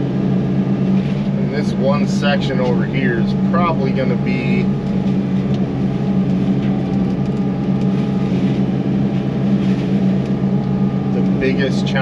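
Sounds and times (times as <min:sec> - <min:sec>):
excavator diesel engine and hydraulics: 0:00.0 - 0:06.8.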